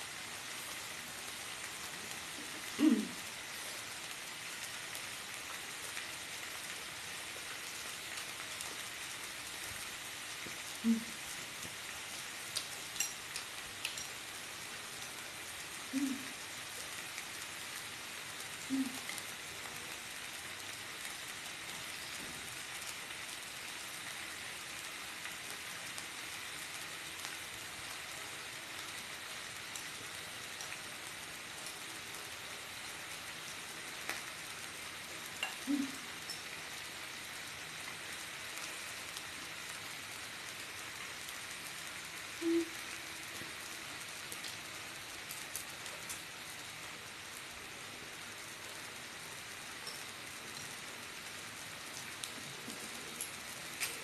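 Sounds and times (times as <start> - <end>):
meat sizzling in a pan: 0.0 - 54.0.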